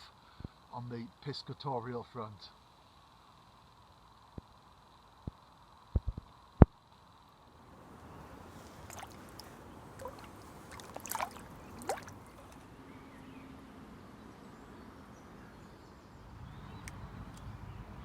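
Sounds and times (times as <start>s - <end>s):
water washing: 7.9s - 12.7s.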